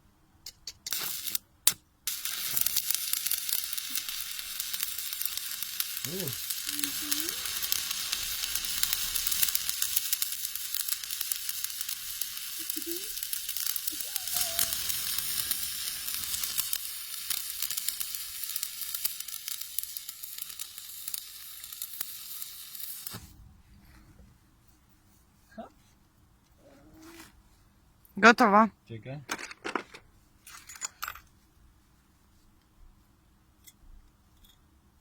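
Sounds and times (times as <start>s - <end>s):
welding arc crackling sizzle: 0.8s - 23.3s.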